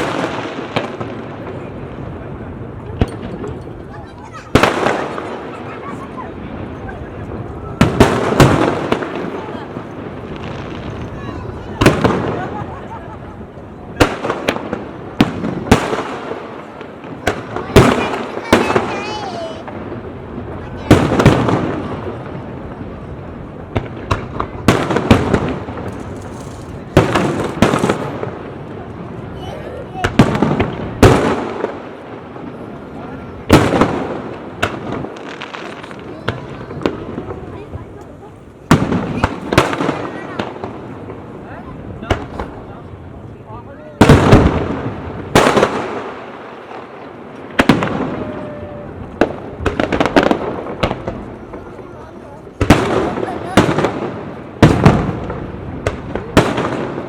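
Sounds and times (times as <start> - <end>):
fireworks bangs: 0.0 - 57.0
murmur of voices: 0.0 - 57.0
small fireworks pops: 0.0 - 57.0
firework shells bursting: 23.7 - 29.2.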